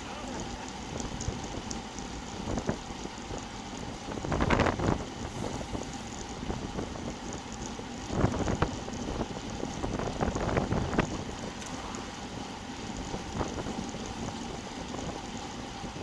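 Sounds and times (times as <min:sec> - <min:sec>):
wind buffeting microphone: 0:00.4 - 0:16.0.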